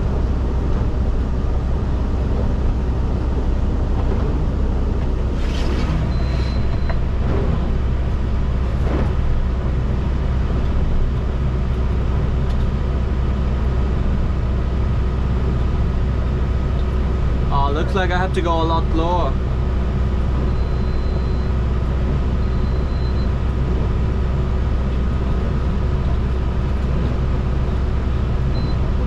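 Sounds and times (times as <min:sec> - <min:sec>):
hydraulic rock breaker drone: 0:03.5 - 0:09.7.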